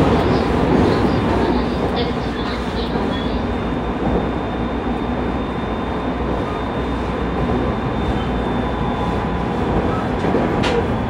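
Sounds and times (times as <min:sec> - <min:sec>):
electric train rumbling: 0:00.0 - 0:11.0.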